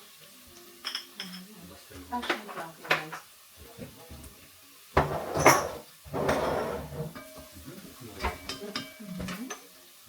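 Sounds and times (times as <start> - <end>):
cupboard door knock and scrape: 5.0 - 7.1.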